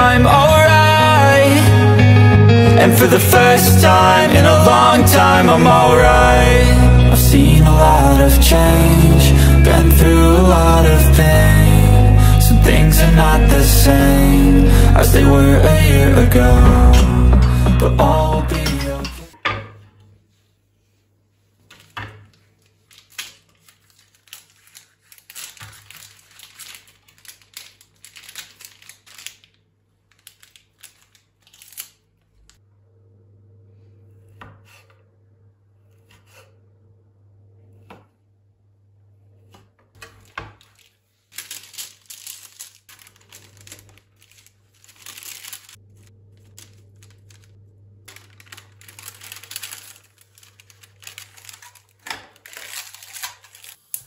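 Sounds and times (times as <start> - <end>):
packaging torn and crinkled: 21.8 - 32.6, 40.2 - 54.0.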